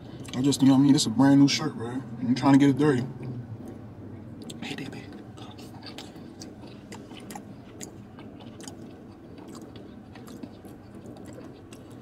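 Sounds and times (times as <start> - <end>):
man chewing pasta: 3.2 - 12.0.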